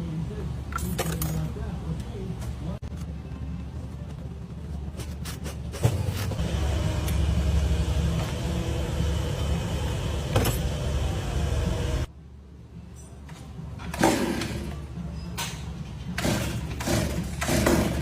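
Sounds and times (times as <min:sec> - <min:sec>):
low machine rumble: 0:06.0 - 0:12.1.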